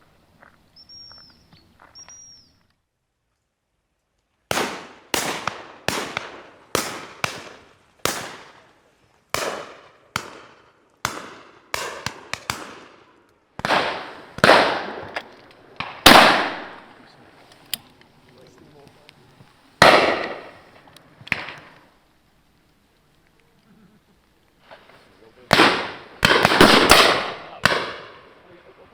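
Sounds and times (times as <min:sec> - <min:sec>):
shotguns firing with echo: 0:04.5 - 0:08.7, 0:09.3 - 0:17.1, 0:19.8 - 0:21.9, 0:24.6 - 0:28.9.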